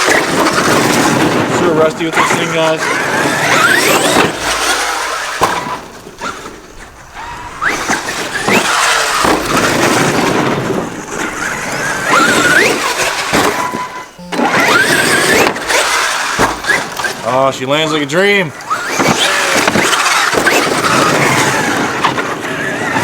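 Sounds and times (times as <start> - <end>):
electric motor whining: 0.0 - 23.0
tyres scrabbling on dirt: 0.0 - 23.0
sharp knocks: 7.6 - 17.2.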